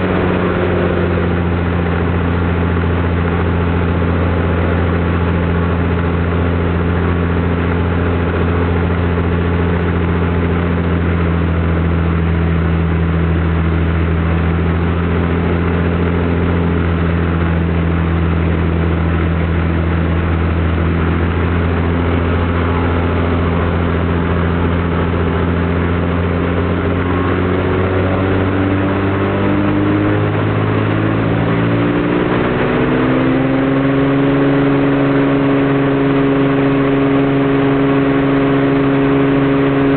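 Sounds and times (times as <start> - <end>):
piston aircraft engine running: 0.0 - 39.9.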